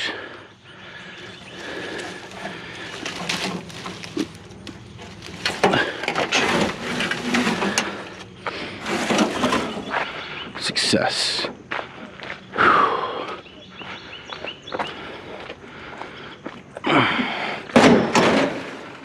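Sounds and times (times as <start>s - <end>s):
brush rustling and crackling: 1.1s - 10.1s
scrapes and knocks: 1.2s - 10.1s.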